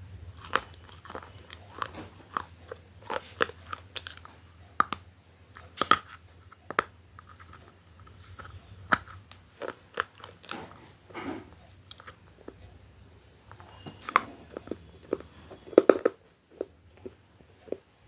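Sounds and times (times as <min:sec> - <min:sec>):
person crunching crisp food: 0:00.2 - 0:04.6, 0:07.3 - 0:10.9.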